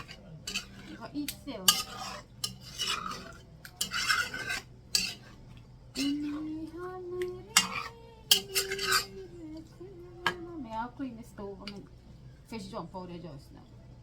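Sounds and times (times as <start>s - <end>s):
metal spoon scraping a pot: 0.0s - 6.8s, 7.4s - 9.3s.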